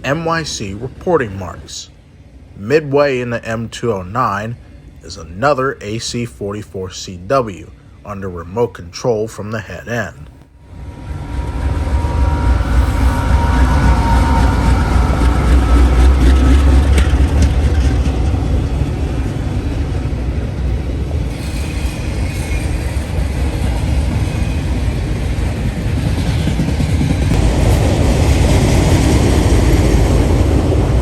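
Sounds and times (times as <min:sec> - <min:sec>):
diesel locomotive engine rumble: 0:00.0 - 0:31.0
train wheels rolling on rails: 0:10.3 - 0:31.0
rail clicks: 0:11.1 - 0:31.0.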